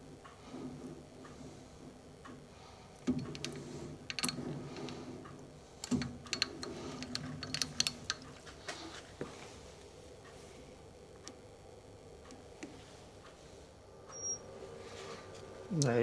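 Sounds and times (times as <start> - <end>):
lathe low hum: 0.0 - 16.0
sharp metallic clicks: 3.0 - 8.5.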